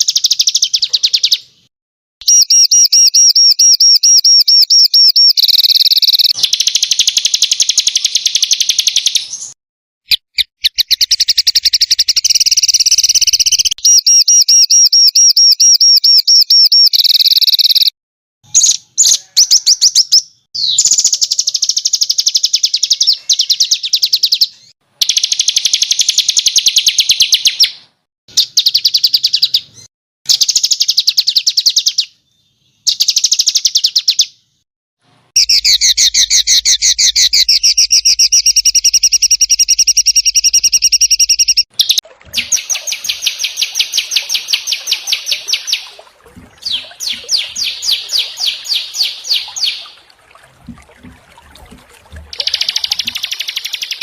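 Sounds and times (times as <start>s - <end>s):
songbirds giving harsh rattling trills: 41.2s - 50.3s, 52.3s - 54.0s.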